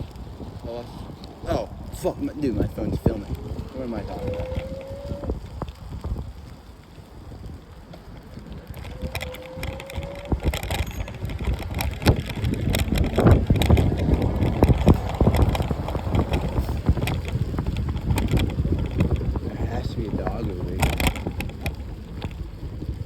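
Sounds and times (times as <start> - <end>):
wind buffeting microphone: 0.0 - 23.0
sharp clicks and knocks: 7.9 - 19.4, 20.2 - 22.4.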